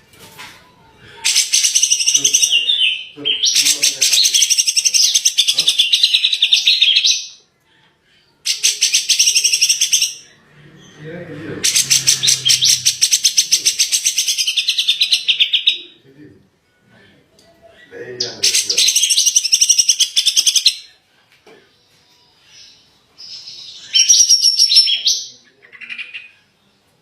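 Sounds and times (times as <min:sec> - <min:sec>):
songbird chattering song: 0:01.2 - 0:07.4, 0:08.4 - 0:11.0, 0:11.6 - 0:16.0, 0:17.6 - 0:20.9, 0:22.4 - 0:26.6.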